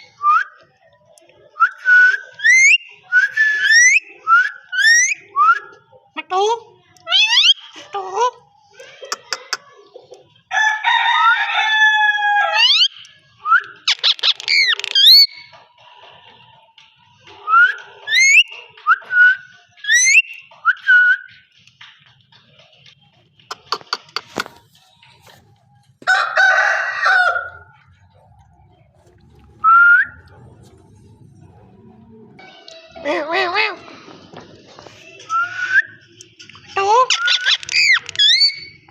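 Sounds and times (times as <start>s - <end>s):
parrot whistled glides: 29.5s - 30.4s.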